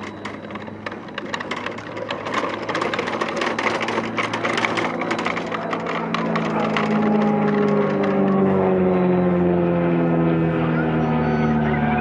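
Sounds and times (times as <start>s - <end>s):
rapid mechanical clatter: 0.0s - 8.6s
low motor hum: 0.0s - 12.0s.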